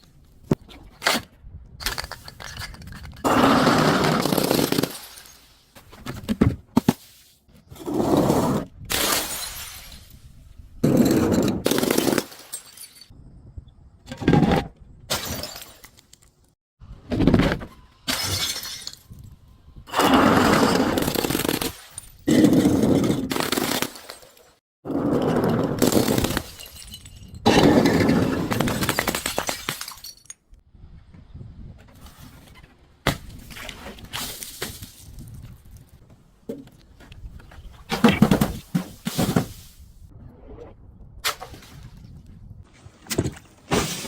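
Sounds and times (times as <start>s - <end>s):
glass bottles breaking and crunching: 4.0s - 5.6s, 8.9s - 10.2s, 10.8s - 13.1s, 15.1s - 16.0s, 18.0s - 19.2s, 20.0s - 24.6s, 25.3s - 30.5s, 43.7s - 44.0s.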